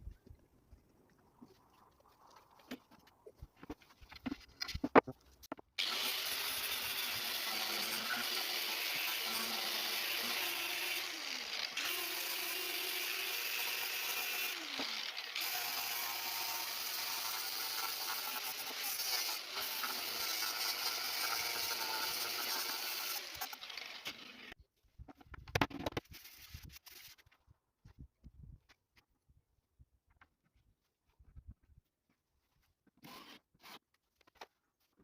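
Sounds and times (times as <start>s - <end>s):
small motor-driven tool running: 5.8s - 24.6s.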